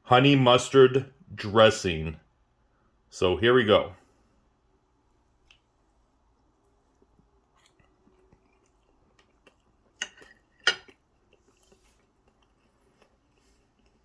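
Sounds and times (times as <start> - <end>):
person chewing food: 5.1 - 14.0.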